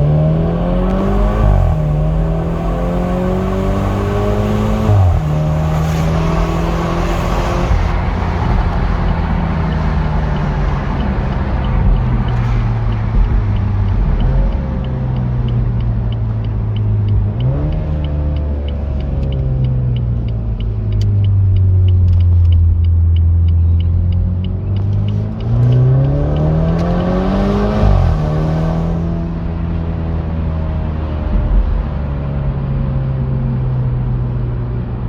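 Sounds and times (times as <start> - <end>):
car engine accelerating: 0.0 - 35.0
faint regular ticking: 8.5 - 28.2.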